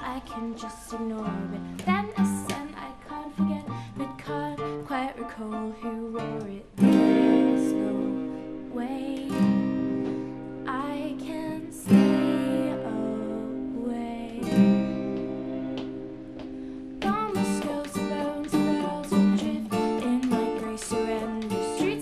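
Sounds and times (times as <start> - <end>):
person singing: 0.0 - 15.9, 17.0 - 22.0
strummed acoustic guitar chords: 5.5 - 22.0.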